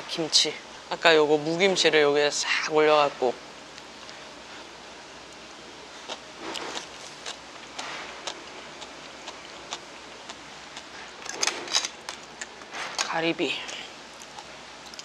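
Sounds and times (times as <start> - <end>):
close chewing with wet clicks: 5.3 - 11.4, 13.7 - 15.0.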